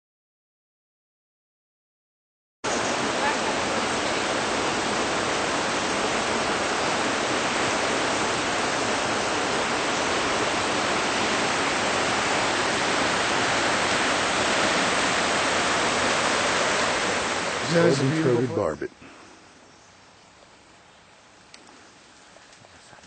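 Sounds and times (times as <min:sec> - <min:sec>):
steady rushing noise: 0:02.7 - 0:18.8.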